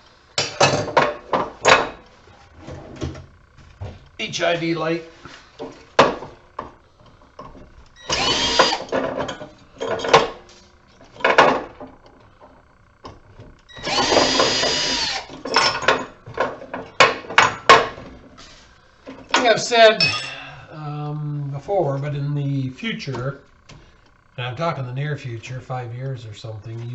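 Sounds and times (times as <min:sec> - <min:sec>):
metal parts clicking and knocking: 0:07.4 - 0:10.4
power drill whining: 0:08.0 - 0:09.0, 0:13.7 - 0:15.5.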